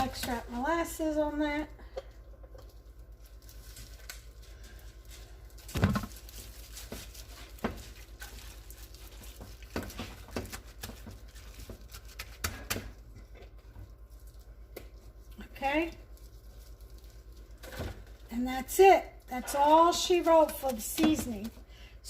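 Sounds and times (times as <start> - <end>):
gloved hands patting meat: 5.7 - 15.2.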